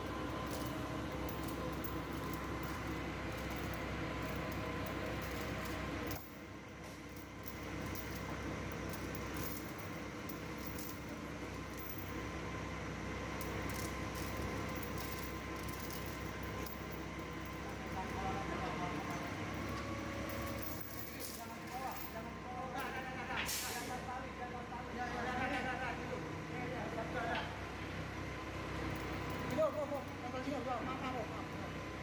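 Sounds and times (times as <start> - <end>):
forklift engine running: 0.0 - 22.5, 27.6 - 30.2.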